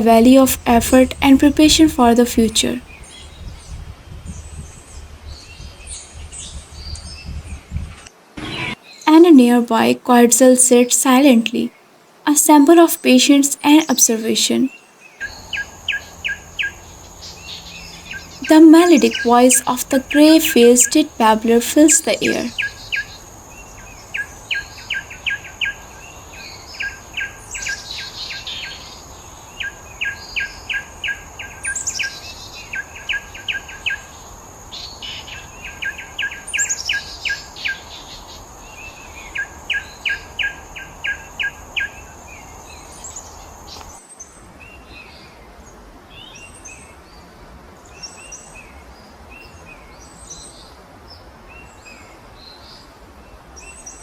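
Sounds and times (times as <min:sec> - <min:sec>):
steady high whine: 0:08.4 - 0:11.0
higher bird chirps: 0:15.2 - 0:24.3
bird singing runs of sharp notes: 0:15.2 - 0:24.7.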